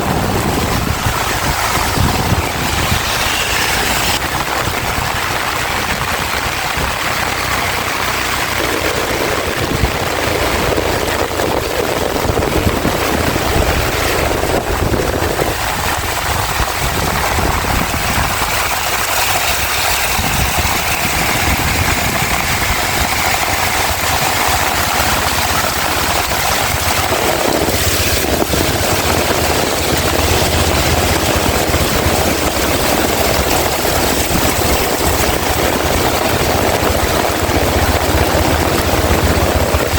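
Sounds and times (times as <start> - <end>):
heavy rain pouring: 0.0 - 39.9
strong wind: 0.0 - 39.9.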